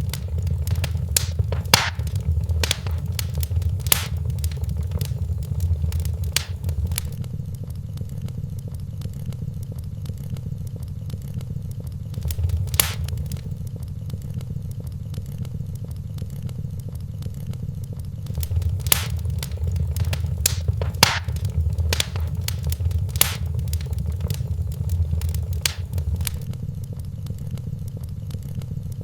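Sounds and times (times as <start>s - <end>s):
wood fire crackling: 0.0s - 7.2s, 12.2s - 13.6s, 18.3s - 26.5s.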